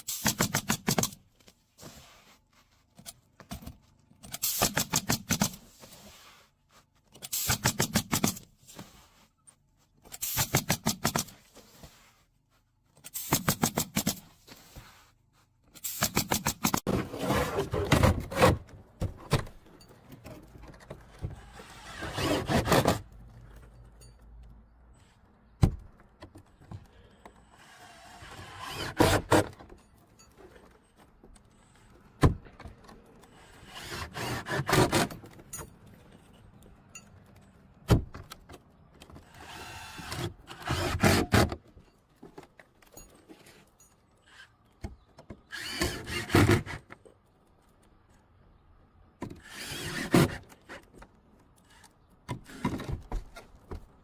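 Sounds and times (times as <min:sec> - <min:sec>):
tool cutting or drilling wood: 0:21.4 - 0:23.0, 0:27.6 - 0:29.5, 0:33.4 - 0:35.2, 0:39.3 - 0:41.6, 0:45.5 - 0:46.9, 0:49.4 - 0:50.5, 0:51.6 - 0:52.9.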